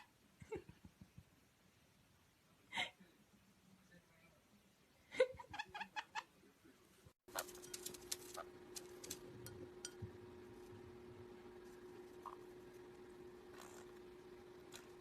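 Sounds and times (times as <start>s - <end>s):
steady hum: 7.3s - 15.0s.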